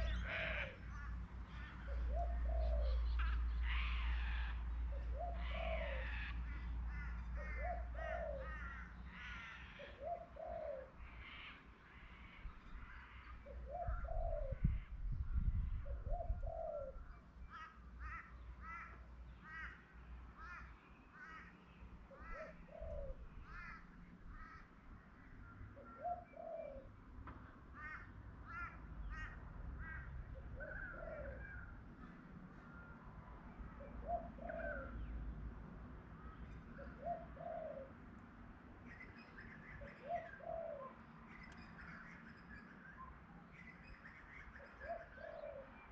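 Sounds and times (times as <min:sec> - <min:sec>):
dove cooing: 0:00.0 - 0:08.9, 0:09.5 - 0:11.0, 0:13.4 - 0:14.8, 0:15.9 - 0:17.1, 0:22.1 - 0:23.8, 0:25.8 - 0:26.9, 0:30.4 - 0:31.7, 0:33.8 - 0:35.1, 0:36.8 - 0:38.0, 0:39.8 - 0:41.0, 0:44.6 - 0:45.9
birds chirping: 0:00.0 - 0:15.1, 0:38.8 - 0:45.9.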